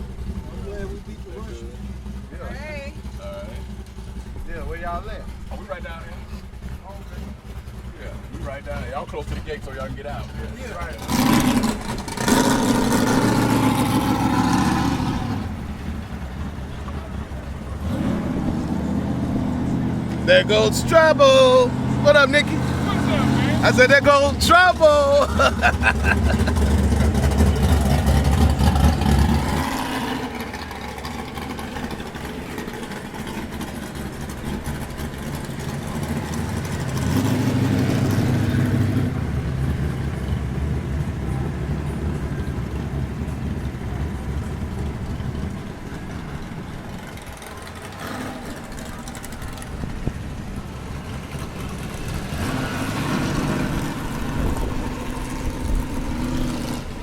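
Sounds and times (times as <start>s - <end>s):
car engines running slowly: 0.0s - 57.0s.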